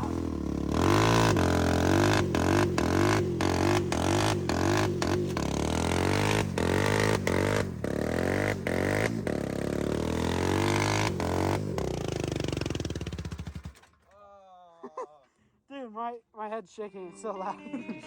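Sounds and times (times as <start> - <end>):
dirt bike engine revving: 0.0 - 13.8.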